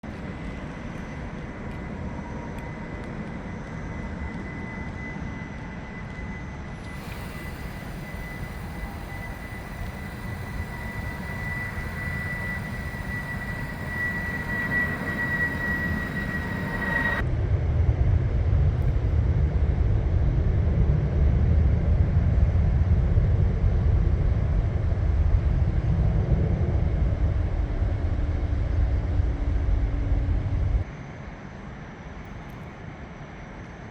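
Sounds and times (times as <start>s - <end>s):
airplane engine whine: 0.0s - 33.9s
low engine rumble: 6.6s - 17.4s.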